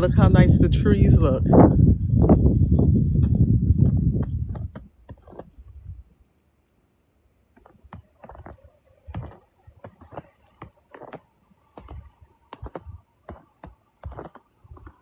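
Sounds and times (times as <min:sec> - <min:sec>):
wind rumbling on microphone: 0:00.0 - 0:06.1, 0:08.3 - 0:10.4, 0:11.8 - 0:13.1
footsteps crunching in snow: 0:07.6 - 0:15.0.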